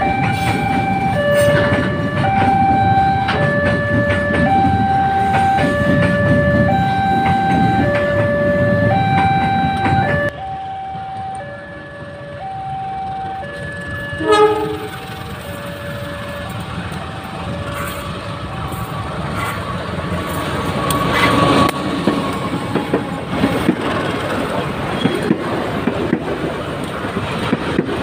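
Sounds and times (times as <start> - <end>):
two-tone level crossing alarm: 0.0 - 18.2
heavy train rumble: 0.0 - 28.0
train horn blast: 14.0 - 16.5.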